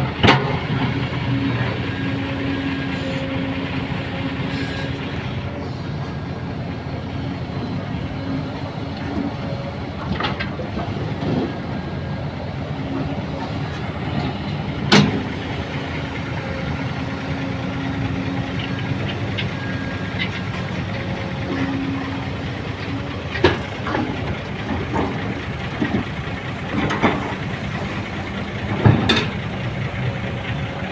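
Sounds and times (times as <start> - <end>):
heavy engine rumbling: 0.0 - 30.9
engine knocks: 12.8 - 16.6, 17.4 - 30.9.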